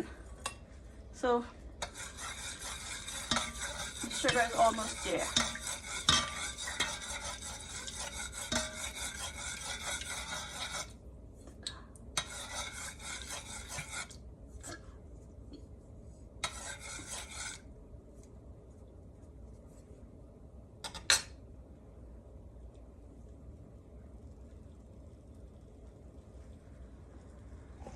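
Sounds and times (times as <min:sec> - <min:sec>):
spoon scraping in a pot: 0:01.8 - 0:11.0, 0:12.2 - 0:14.9, 0:16.4 - 0:17.7.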